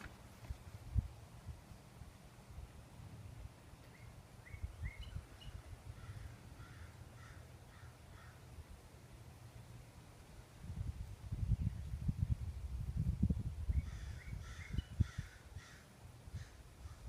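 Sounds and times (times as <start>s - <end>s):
wind buffeting microphone: 0.0s - 1.7s, 10.6s - 17.0s
distant bird calls: 3.8s - 8.6s, 13.7s - 17.0s.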